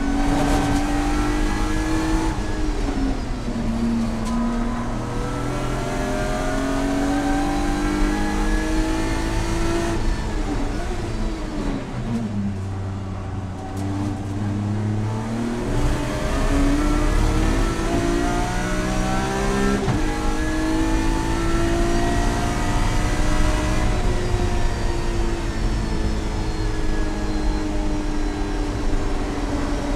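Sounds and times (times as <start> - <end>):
car engine accelerating hard: 0.0 - 29.9.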